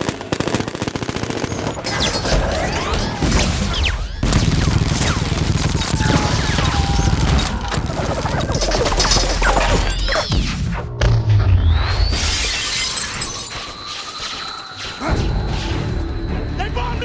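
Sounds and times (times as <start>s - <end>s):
gunfire volleys: 0.0s - 10.7s
sweeping whines: 11.6s - 17.0s.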